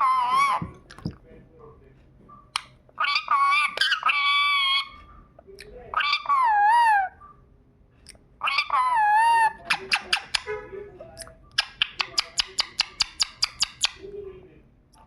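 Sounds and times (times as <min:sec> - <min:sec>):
parrot squawky calls: 0:00.0 - 0:00.8, 0:02.6 - 0:05.1, 0:05.9 - 0:07.2, 0:08.4 - 0:10.5.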